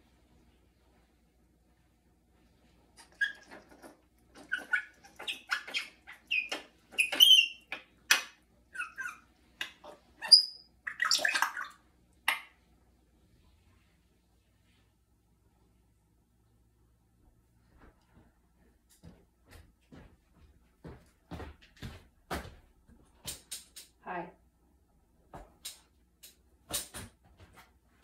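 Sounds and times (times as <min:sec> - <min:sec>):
parrot clicking and chirping: 0:03.0 - 0:12.6.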